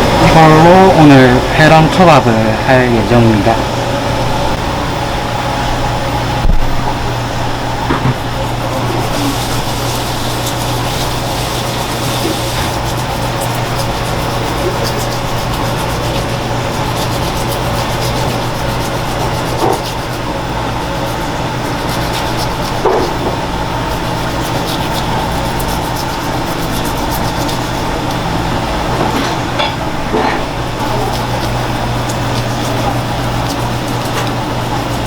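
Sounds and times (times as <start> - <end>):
kitchen machinery humming: 0.0 - 35.0
knocks and scrapes on cutting board: 7.9 - 8.4, 22.1 - 23.4.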